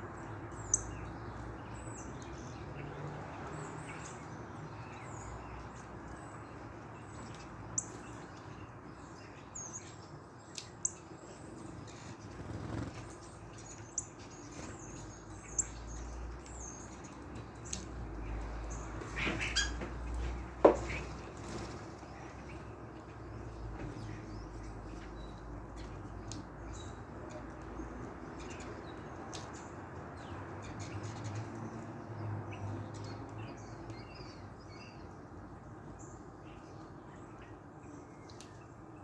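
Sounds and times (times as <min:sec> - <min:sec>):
small birds chirping: 0:00.0 - 0:39.0
wings fluttering: 0:11.8 - 0:13.5, 0:19.0 - 0:22.5.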